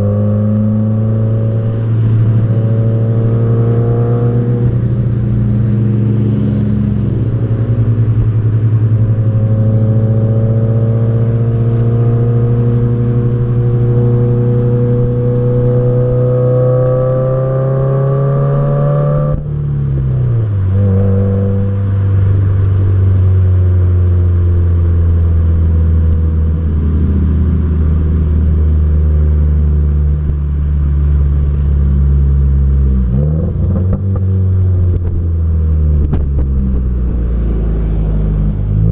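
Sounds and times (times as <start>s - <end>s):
car exhaust drone: 0.0s - 38.9s.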